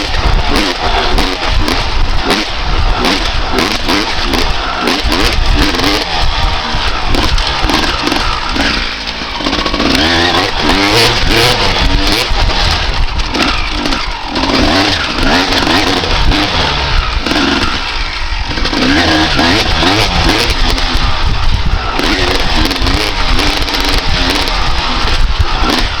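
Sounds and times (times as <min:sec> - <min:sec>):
two-stroke motorcycle engine revving: 0:00.0 - 0:26.0.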